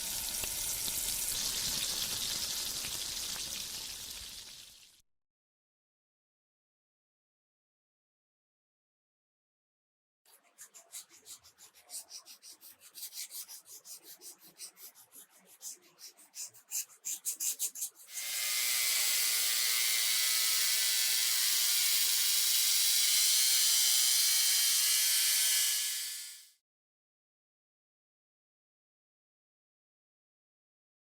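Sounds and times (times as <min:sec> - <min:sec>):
sanding strokes: 0:10.3 - 0:26.4.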